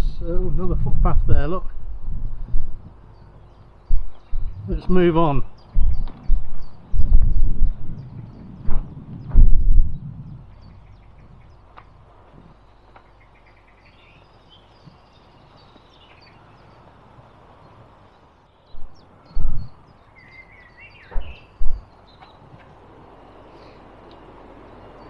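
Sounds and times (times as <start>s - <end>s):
low rumbles on microphone: 0.0s - 12.9s, 18.7s - 20.0s, 20.9s - 22.0s
small birds chirping and singing: 0.0s - 25.0s.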